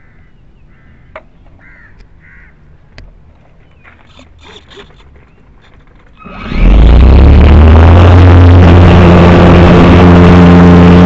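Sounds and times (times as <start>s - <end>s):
bird harsh calls: 0.0s - 2.6s.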